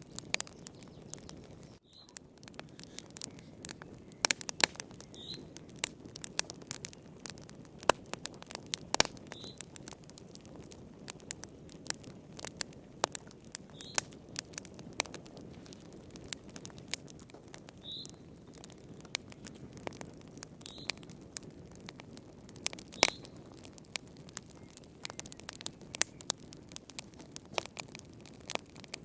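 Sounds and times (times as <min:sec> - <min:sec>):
wood fire crackling and popping: 0:00.0 - 0:29.0
hiss of flames: 0:02.4 - 0:10.0.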